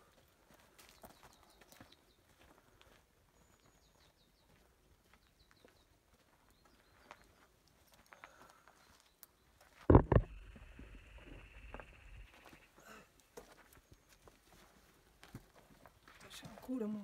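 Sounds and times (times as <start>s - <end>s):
footsteps on stony ground: 0.0s - 17.0s
faint high bird chirps: 3.4s - 9.6s, 10.3s - 12.8s.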